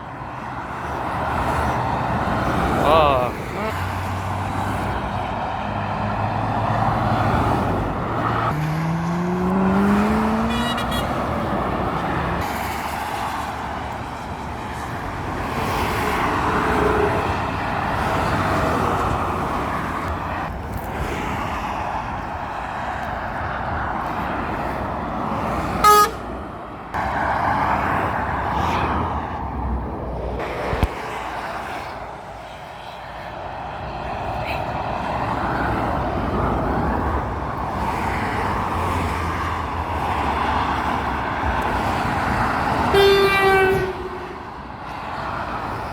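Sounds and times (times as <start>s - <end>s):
passing traffic: 0.0s - 45.9s
heavy vehicle accelerating: 1.4s - 13.8s
vehicle horn toot: 10.2s - 11.4s, 25.8s - 26.3s, 42.9s - 44.4s.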